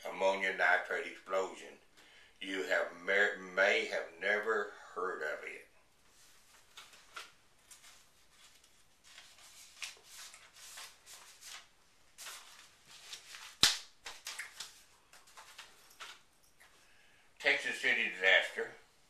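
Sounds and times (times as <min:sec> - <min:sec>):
soft rustles: 0:05.9 - 0:17.0.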